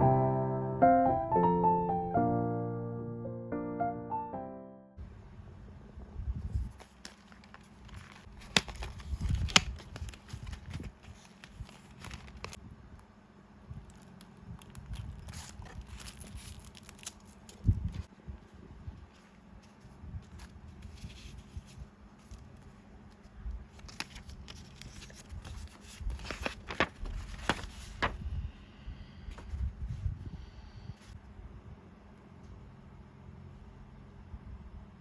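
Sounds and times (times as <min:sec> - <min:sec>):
piano music: 0:00.0 - 0:05.0
rustling and crinkling materials: 0:06.4 - 0:12.7, 0:13.7 - 0:28.4.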